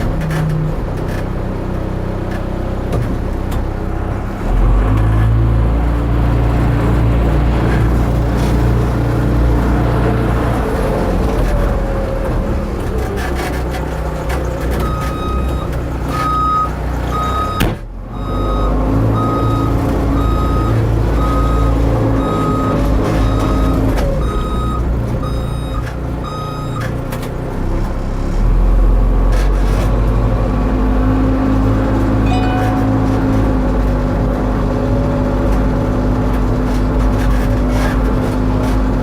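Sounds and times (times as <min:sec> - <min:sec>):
diesel engine running: 0:00.0 - 0:39.0
reversing alarm beeping: 0:14.9 - 0:26.8.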